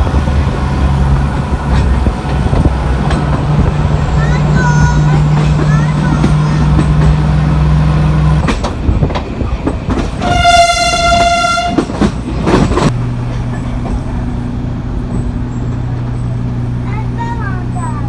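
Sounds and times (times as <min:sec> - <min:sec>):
diesel locomotive horn: 0:00.0 - 0:08.4, 0:10.2 - 0:12.1
locomotive engine hum: 0:00.0 - 0:18.0.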